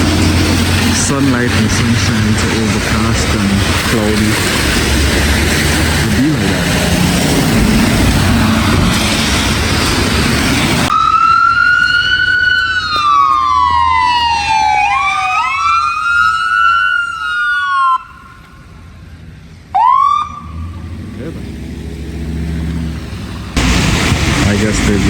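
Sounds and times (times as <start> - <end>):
steady rushing noise: 0.0 - 11.0, 23.0 - 25.0
emergency vehicle sirens wailing: 0.0 - 25.0.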